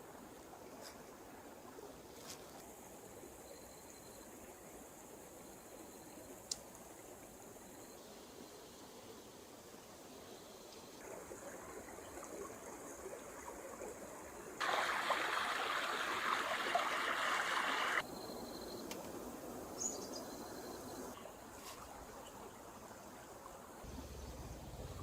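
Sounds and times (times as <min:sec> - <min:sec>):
forest stream flowing and trickling: 0:00.0 - 0:25.0
low hum: 0:23.9 - 0:25.0.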